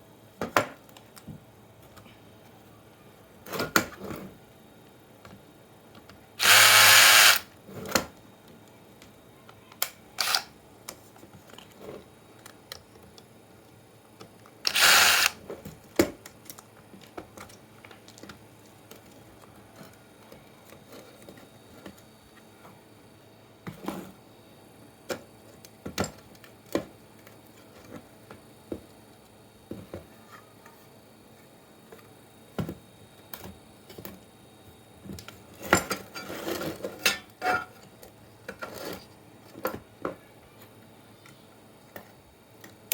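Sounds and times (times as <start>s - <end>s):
small power drill running: 6.4s - 7.5s, 10.2s - 10.5s, 14.7s - 15.4s.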